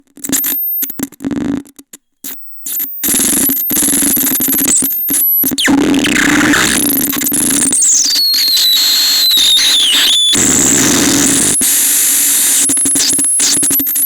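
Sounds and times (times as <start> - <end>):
harsh glitchy electronic noise: 2.8 - 14.0.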